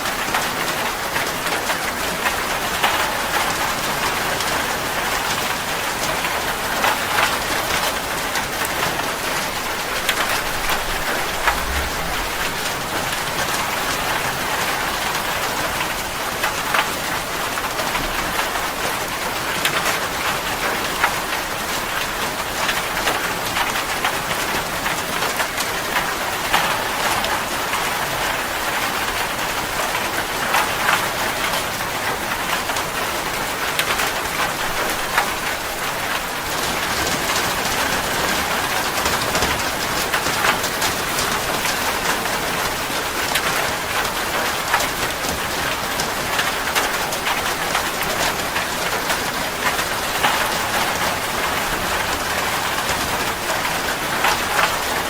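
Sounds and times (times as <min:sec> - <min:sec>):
rain pattering on a surface: 0:00.0 - 0:55.0.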